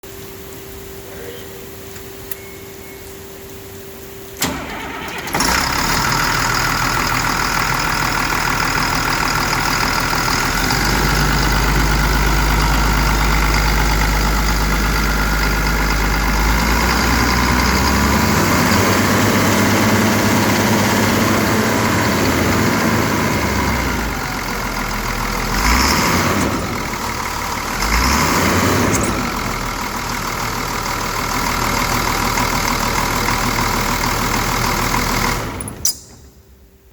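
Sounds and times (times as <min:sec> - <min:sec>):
diesel engine starting and running: 0:02.2 - 0:36.9.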